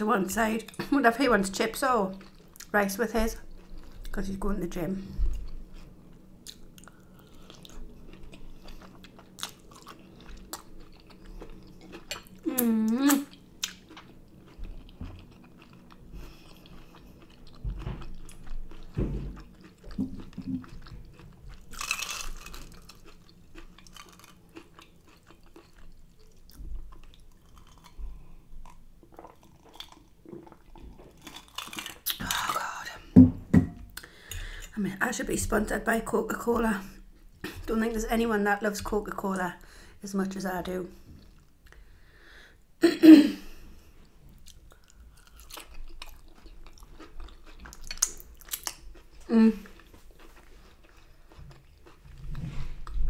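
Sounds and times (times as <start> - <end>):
person chewing and crunching food: 1.8 - 4.3, 5.1 - 33.0, 43.6 - 53.0.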